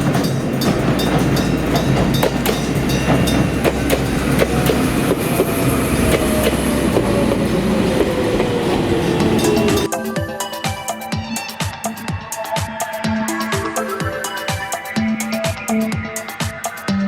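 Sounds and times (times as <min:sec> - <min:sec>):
train rumbling past: 0:00.0 - 0:09.9
train whine sliding down: 0:00.0 - 0:11.0.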